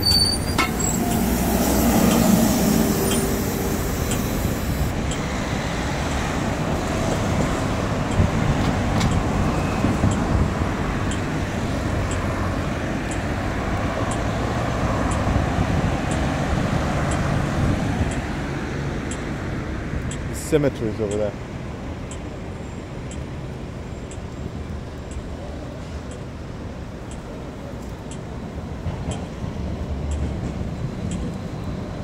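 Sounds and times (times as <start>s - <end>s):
rumble of passing vehicles: 0.0s - 32.0s.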